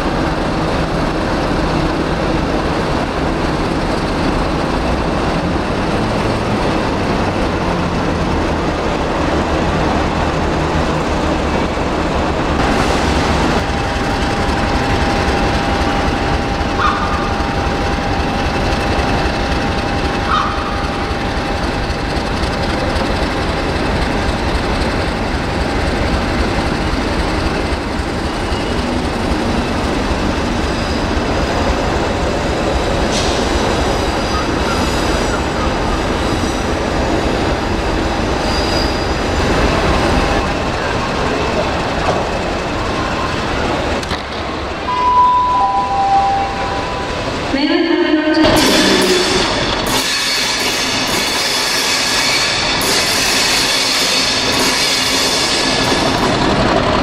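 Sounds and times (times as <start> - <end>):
train wheels rumbling on rail: 0.0 - 57.0
high-pitched whine: 44.8 - 47.7.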